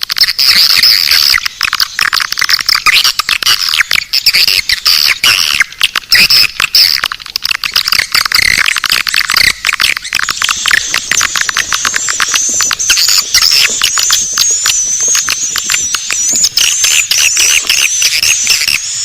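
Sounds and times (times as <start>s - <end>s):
swiftlets chirping and clicking: 0.0s - 19.0s
high rising twitters: 7.6s - 19.0s.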